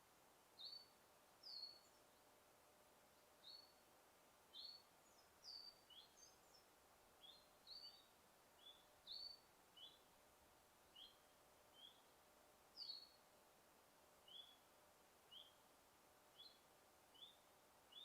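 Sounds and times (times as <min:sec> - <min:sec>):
forest ambience hiss: 0:00.0 - 0:18.0
small bird chirping: 0:00.6 - 0:02.3, 0:03.4 - 0:03.8, 0:04.5 - 0:10.1, 0:10.8 - 0:12.2, 0:12.8 - 0:13.2, 0:14.2 - 0:14.7, 0:15.3 - 0:15.6, 0:16.3 - 0:18.0.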